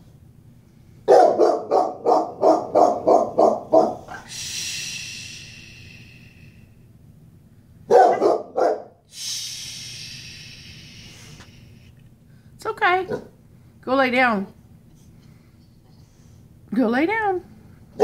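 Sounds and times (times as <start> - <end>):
dog barking deeply: 1.1 - 4.3, 7.9 - 9.0.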